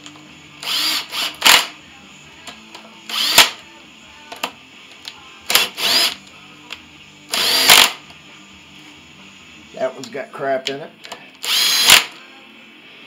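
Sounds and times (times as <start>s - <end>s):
power driver whining: 0.0s - 1.8s, 2.4s - 3.6s, 5.5s - 6.3s, 7.3s - 8.1s, 11.0s - 12.2s.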